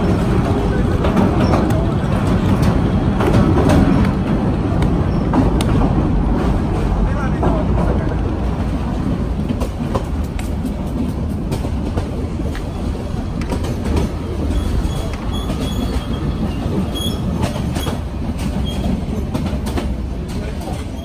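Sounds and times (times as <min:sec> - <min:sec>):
low rumble of train wheels: 0:00.0 - 0:21.0
clacks and knocks from rails: 0:15.0 - 0:21.0.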